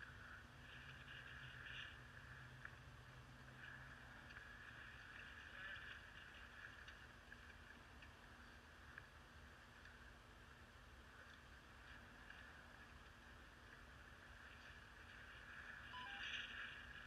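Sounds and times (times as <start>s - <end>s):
low hum: 0.0s - 17.0s
faint clicks: 0.7s - 10.1s.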